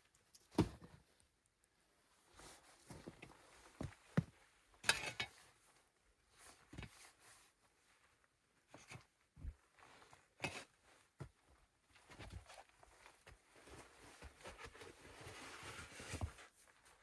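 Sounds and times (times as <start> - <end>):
rustling: 11.9 - 17.0.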